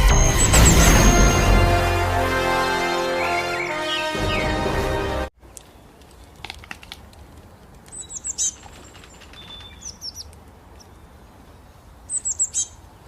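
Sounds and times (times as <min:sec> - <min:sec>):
small bird chirping: 0:07.9 - 0:11.2, 0:12.0 - 0:12.8.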